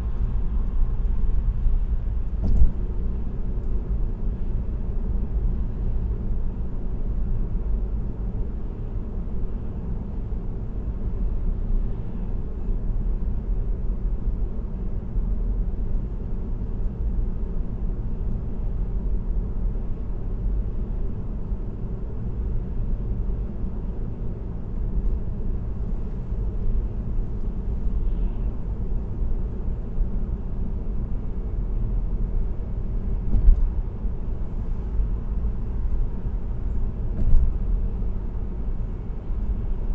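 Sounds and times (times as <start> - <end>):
tyre and road noise inside car: 0.0 - 39.9
thump: 2.4 - 2.8, 33.3 - 33.7, 37.2 - 37.5.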